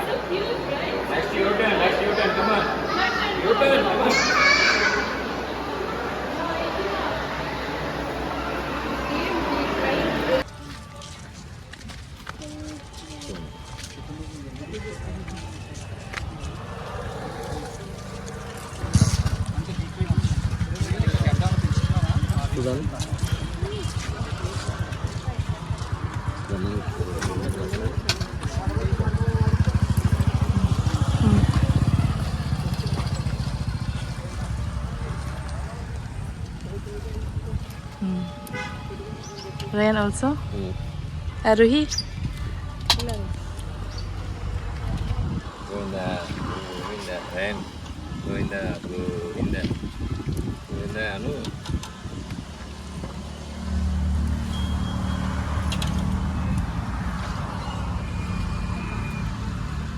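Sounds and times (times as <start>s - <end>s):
road noise: 0.0s - 59.9s
vehicle engine running: 13.4s - 59.9s.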